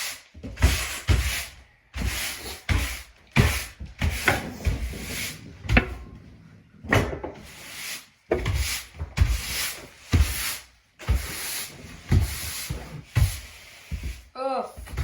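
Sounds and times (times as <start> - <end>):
scraping wood and debris: 3.2 - 7.6.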